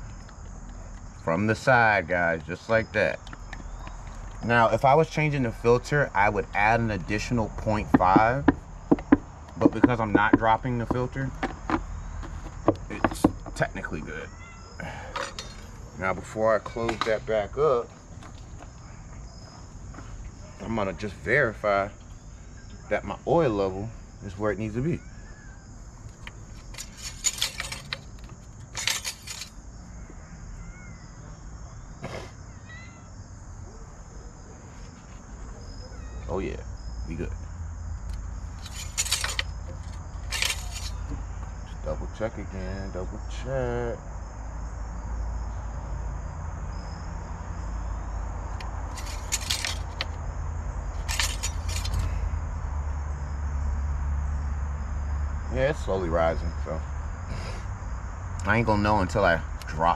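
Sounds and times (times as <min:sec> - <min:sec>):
crickets chirring: 0:00.0 - 0:59.9
clattering handling noise: 0:07.0 - 0:14.1, 0:14.8 - 0:17.3, 0:26.0 - 0:29.6, 0:38.1 - 0:41.6, 0:48.6 - 0:50.2, 0:50.9 - 0:52.2.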